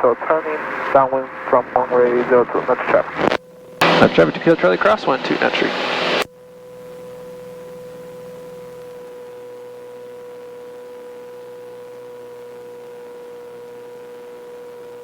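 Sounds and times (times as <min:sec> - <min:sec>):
aircraft engine droning: 0:00.0 - 0:06.3
steady pitched tone: 0:00.0 - 0:06.3.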